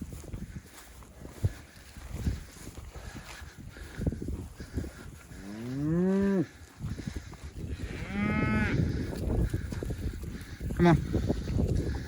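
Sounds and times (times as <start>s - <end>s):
cattle mooing: 5.4s - 6.5s, 7.8s - 8.9s.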